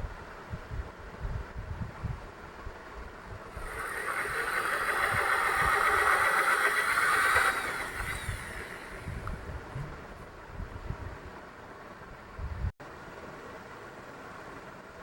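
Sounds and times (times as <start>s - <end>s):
wind thumping on microphone: 0.0s - 11.3s.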